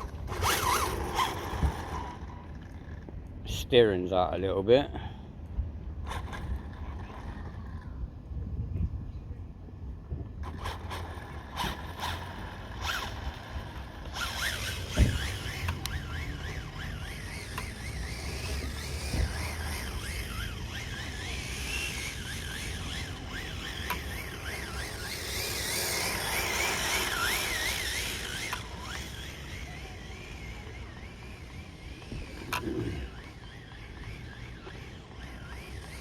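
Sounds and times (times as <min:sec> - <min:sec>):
radio-controlled car motor whining: 0:00.0 - 0:03.1, 0:10.4 - 0:36.0
car rushing on ground: 0:10.4 - 0:36.0.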